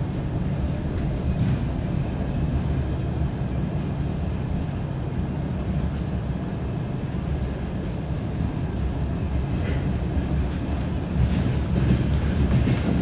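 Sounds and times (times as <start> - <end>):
diesel train rumbling: 0.0 - 13.0.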